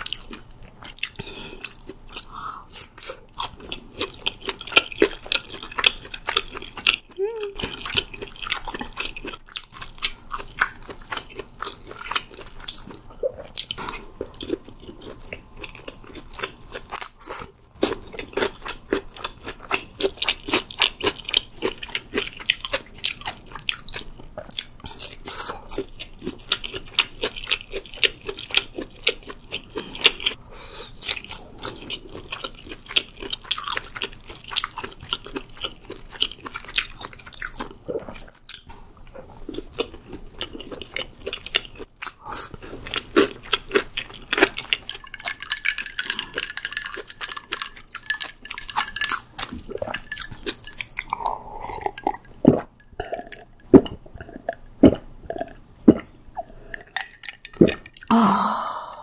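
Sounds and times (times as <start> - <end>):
chewing with wet squishing: 0.0 - 58.1
swallowing gulps: 51.0 - 59.0.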